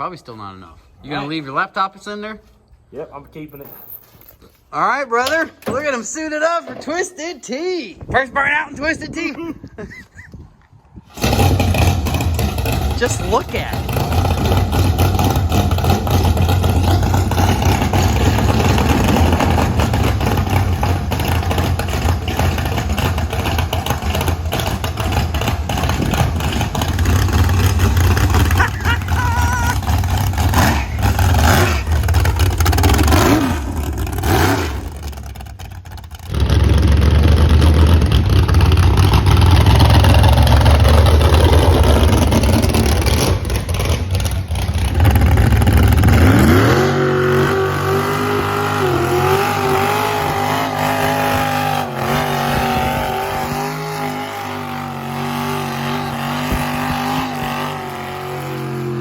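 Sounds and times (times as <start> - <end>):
car engine revving in a burnout: 11.1 - 59.0
tyres spinning: 11.2 - 35.0.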